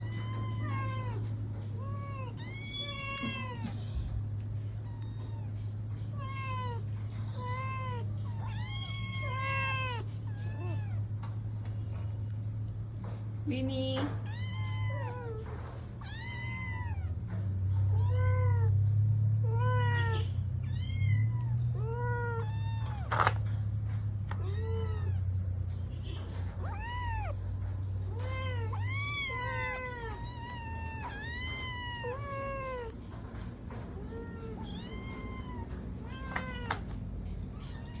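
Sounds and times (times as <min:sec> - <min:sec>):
cat meowing: 0:00.0 - 0:04.0, 0:04.8 - 0:11.1, 0:14.3 - 0:17.2, 0:19.4 - 0:23.1, 0:24.4 - 0:25.4, 0:26.4 - 0:27.5, 0:28.1 - 0:33.0, 0:33.9 - 0:36.8.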